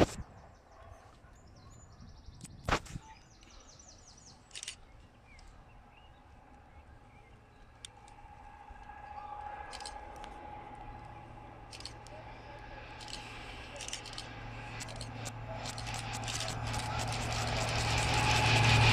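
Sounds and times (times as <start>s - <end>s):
steady hum and low rumble: 4.1s - 18.9s
sharp clicks: 4.3s - 5.5s, 9.6s - 18.9s
short rapid rattle: 11.6s - 18.9s.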